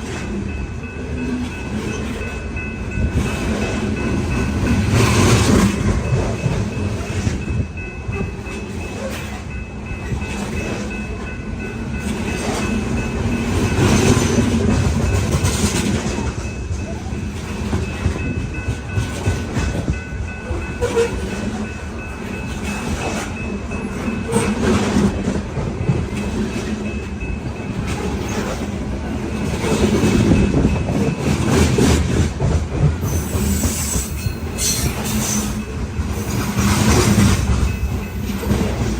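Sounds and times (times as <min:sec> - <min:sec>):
freight train rumble: 0:00.0 - 0:38.9
train wheels clicking over rail joints: 0:12.0 - 0:38.9.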